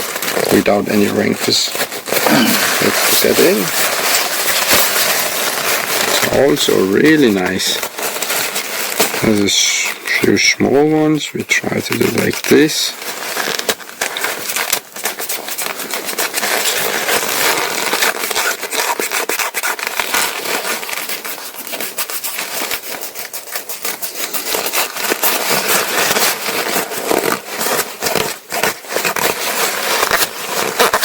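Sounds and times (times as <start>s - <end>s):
hand rubbing fabric patch: 0.3s - 10.8s.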